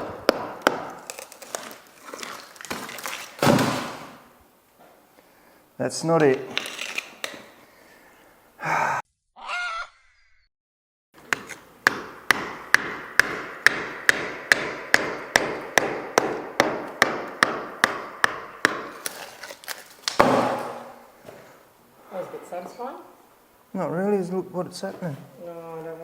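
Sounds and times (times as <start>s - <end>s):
short animal call: 9.4s - 10.0s
hammer striking chisel on masonry: 11.3s - 19.0s.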